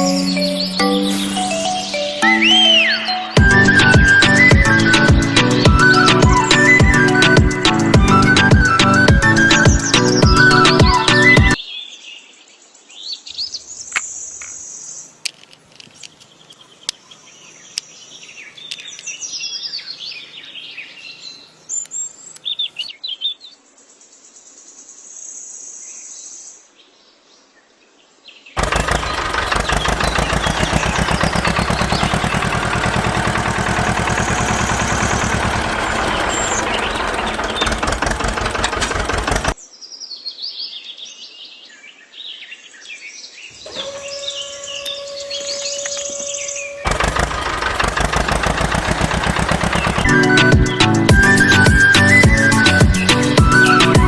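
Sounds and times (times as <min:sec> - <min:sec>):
birds chirping: 0:00.0 - 0:23.4, 0:28.5 - 0:40.3, 0:43.2 - 0:54.0
power tool rattling: 0:28.6 - 0:39.6, 0:43.6 - 0:54.0.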